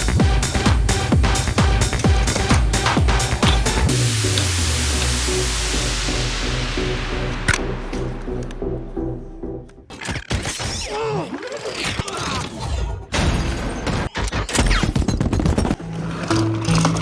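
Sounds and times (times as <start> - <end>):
crash sound effects: 3.5 - 10.6.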